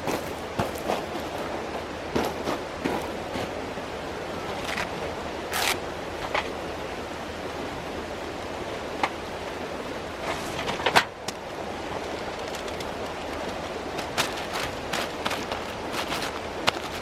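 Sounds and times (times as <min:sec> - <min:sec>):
stream water rushing: 0:00.0 - 0:17.0
knocks and rustles: 0:10.2 - 0:17.0.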